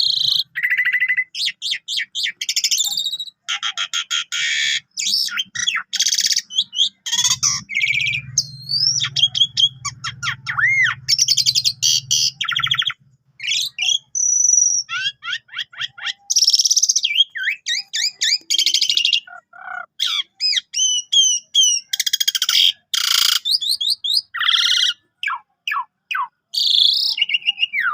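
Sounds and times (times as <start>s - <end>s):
starling singing: 0.0s - 27.9s.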